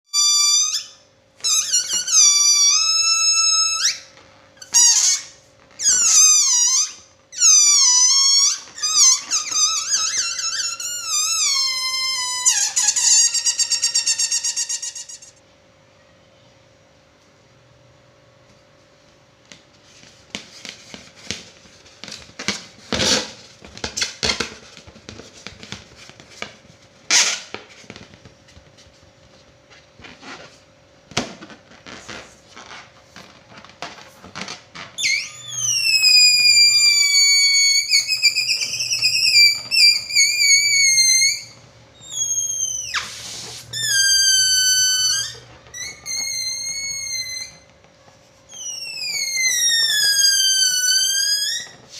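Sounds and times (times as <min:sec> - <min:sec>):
balloon neck squealing: 0:00.1 - 0:15.4, 0:27.1 - 0:27.5, 0:31.7 - 0:47.7, 0:48.4 - 0:51.9
balloon squeaks and rubs: 0:00.1 - 0:15.4, 0:20.0 - 0:28.4, 0:29.8 - 0:51.9.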